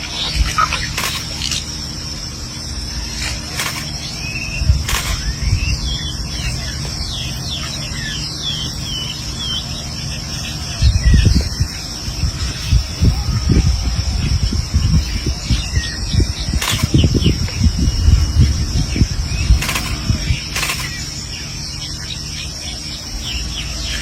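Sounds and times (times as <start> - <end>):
high insect-like drone: 0.0 - 24.0
low rumble: 0.0 - 24.0
sharp clicks: 0.2 - 1.7, 3.2 - 5.5, 16.5 - 17.6, 19.5 - 21.1
quick high chirps: 10.8 - 17.9.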